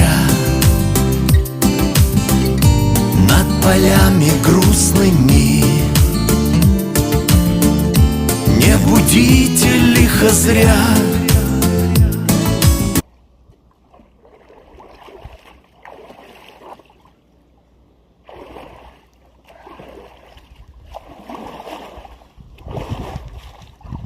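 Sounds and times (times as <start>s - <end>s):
song playing: 0.0s - 13.0s
water splashing in surges: 13.7s - 17.2s, 18.2s - 24.0s.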